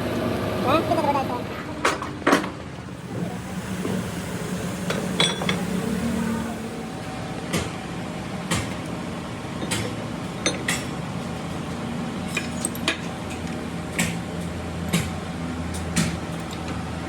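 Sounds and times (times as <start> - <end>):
steady low hum: 2.8 - 7.6.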